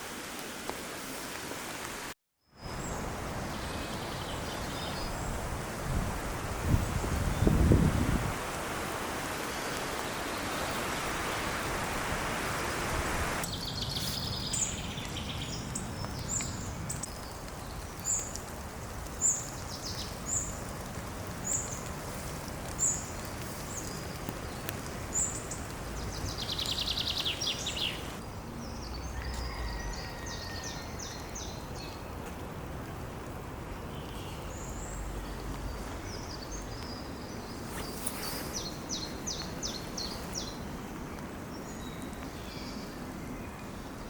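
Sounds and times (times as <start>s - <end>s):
wind or leaves rustling: 0.0s - 44.0s
birds singing: 22.8s - 32.1s.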